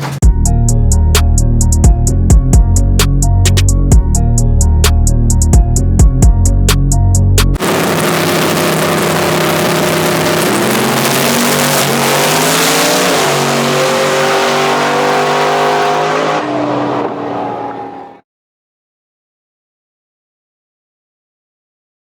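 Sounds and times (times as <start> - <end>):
truck engine at full throttle: 7.4 - 18.2
loud rushing noise: 7.6 - 18.1.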